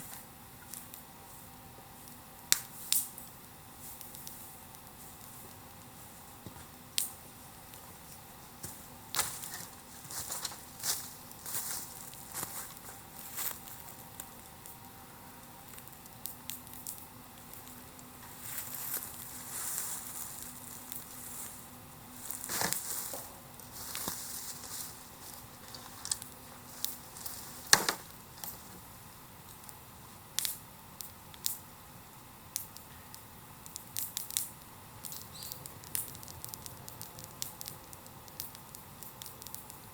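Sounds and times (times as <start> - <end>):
bonfire crackling: 0.0 - 39.9
fire hissing: 0.0 - 39.9
sharp pops: 22.3 - 28.8, 32.5 - 39.9.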